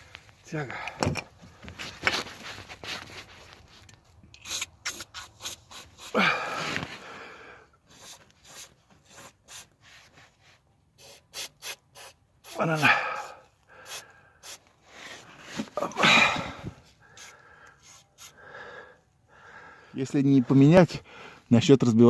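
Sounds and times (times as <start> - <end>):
hand rubbing and scraping metal part: 16.8 - 18.4.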